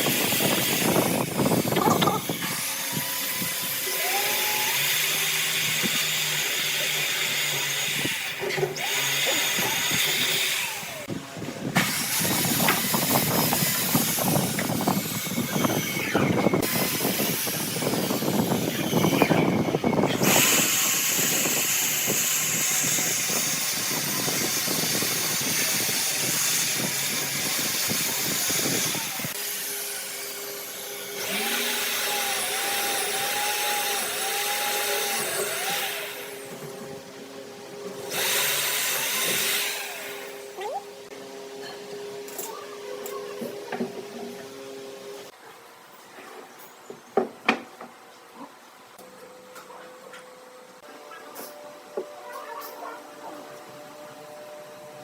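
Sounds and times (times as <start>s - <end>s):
woodworking power tools running: 0.0s - 45.3s.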